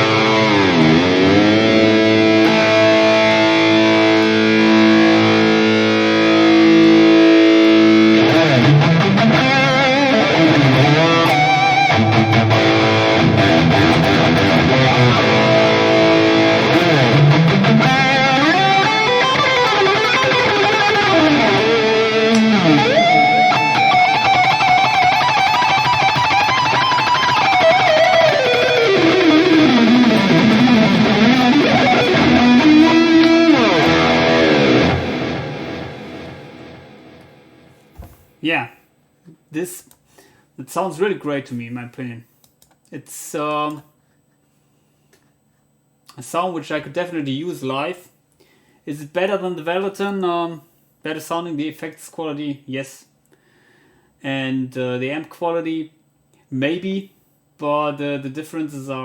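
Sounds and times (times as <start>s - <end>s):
electric guitar: 0.0s - 38.2s.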